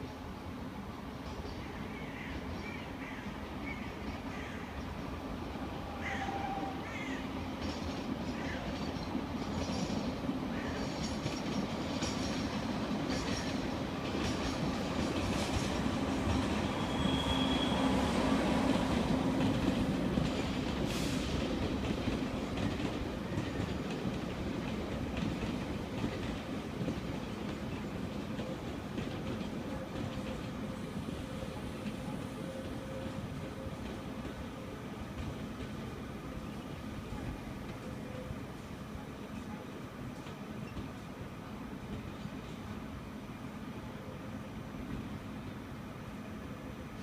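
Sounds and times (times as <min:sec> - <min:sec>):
train rumble: 0:00.0 - 0:47.0
wheel squeal: 0:16.6 - 0:18.1.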